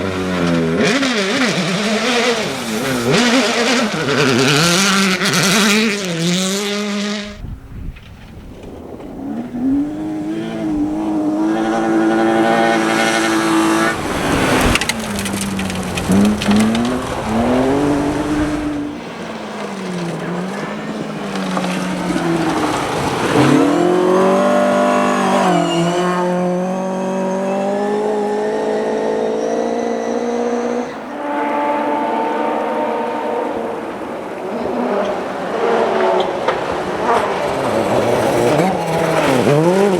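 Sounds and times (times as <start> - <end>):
rally car engine revving: 0.0 - 7.4, 8.6 - 39.9
tyre noise: 7.2 - 31.1.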